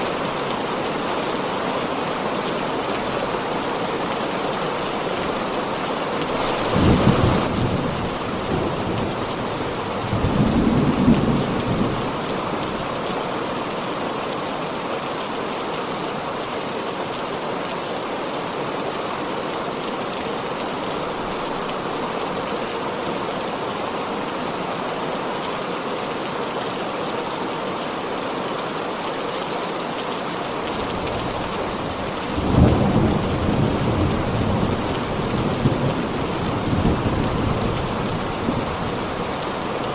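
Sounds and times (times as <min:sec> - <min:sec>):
heavy rain hissing: 0:00.0 - 0:18.7, 0:26.9 - 0:39.9
low thunder rumbling: 0:02.0 - 0:12.7.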